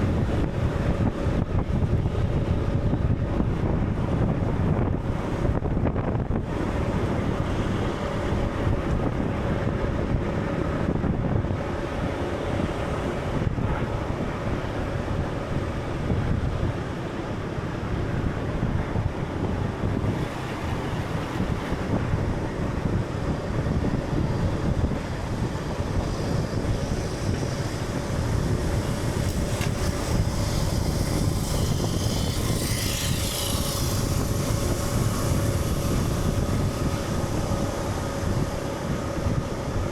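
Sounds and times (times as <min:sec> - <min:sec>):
low rumbling ambience: 0:00.0 - 0:39.9.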